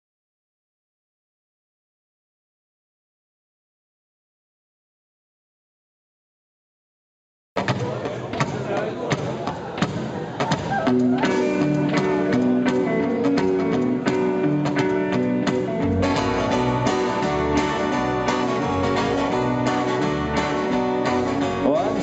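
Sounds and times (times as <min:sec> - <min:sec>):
picked guitar line: 0:10.5 - 0:22.0
rock band playing: 0:10.8 - 0:22.0.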